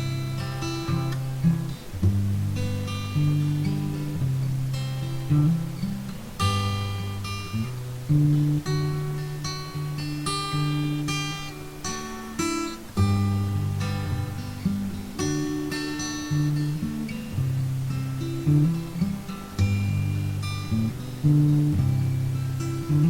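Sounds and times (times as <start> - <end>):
acoustic guitar strummed chords: 0.0 - 23.0.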